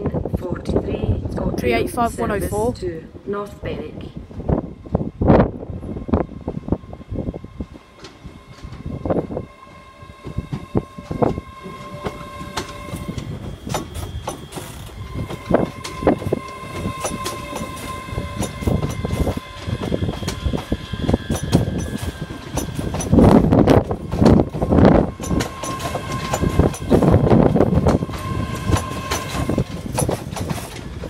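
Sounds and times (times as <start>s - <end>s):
train low rumble: 0.0s - 31.0s
high whining tones: 4.1s - 31.0s
train wheels clicking over rail joints: 7.4s - 31.0s.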